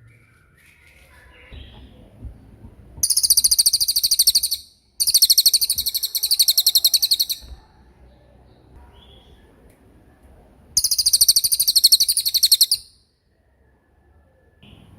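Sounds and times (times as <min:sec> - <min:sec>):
songbird trilling: 0:03.0 - 0:07.6, 0:10.8 - 0:13.0.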